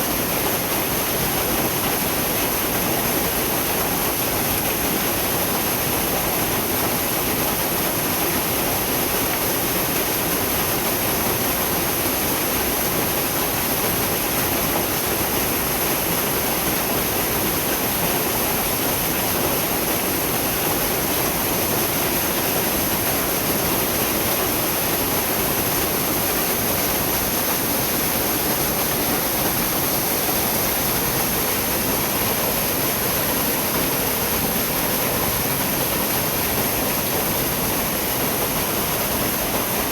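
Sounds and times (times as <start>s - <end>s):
water rushing over rocks: 14.8s - 39.9s.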